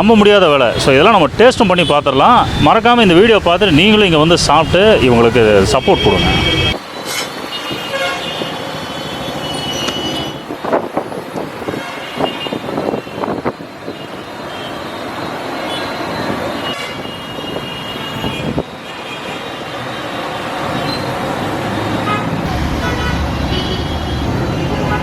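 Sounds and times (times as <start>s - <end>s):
busy road traffic: 0.0s - 25.0s
vehicle horn toots: 5.6s - 6.8s, 16.6s - 19.4s, 22.0s - 25.0s.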